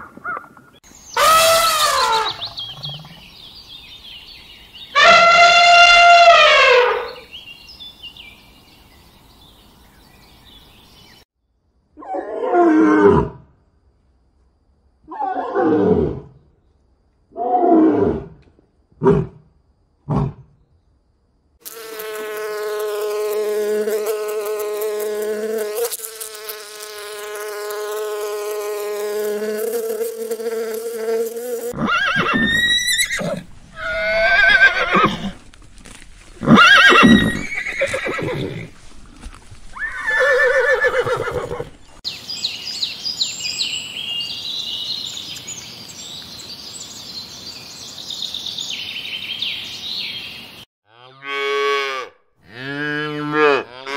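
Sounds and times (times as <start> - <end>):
insect buzzing drone: 21.6 - 35.1.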